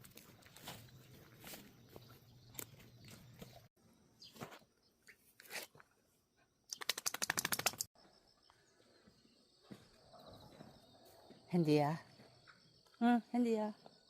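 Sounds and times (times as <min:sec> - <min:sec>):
dog shaking ears flapping: 0:06.7 - 0:07.9.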